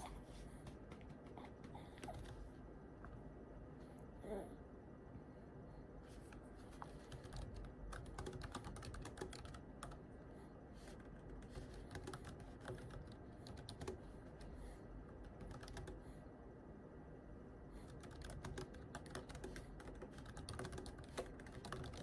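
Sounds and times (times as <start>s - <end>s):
typing on computer keyboard: 7.0s - 10.0s, 11.0s - 14.0s, 15.2s - 16.0s, 17.9s - 22.0s.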